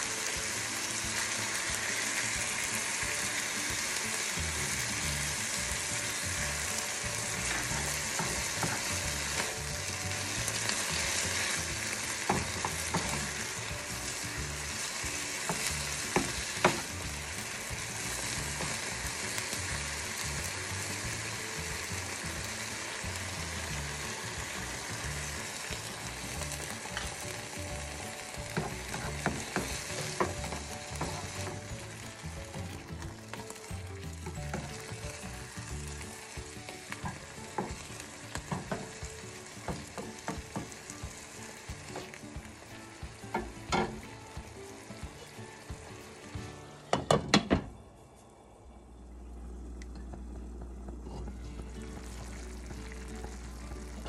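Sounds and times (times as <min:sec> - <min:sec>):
chicken and onion sizzling in pan: 0:00.0 - 0:47.6, 0:49.1 - 0:54.0
spatula knocking and scraping pan: 0:07.4 - 0:09.6, 0:12.2 - 0:13.4, 0:15.4 - 0:17.1, 0:28.5 - 0:31.7, 0:37.0 - 0:40.9.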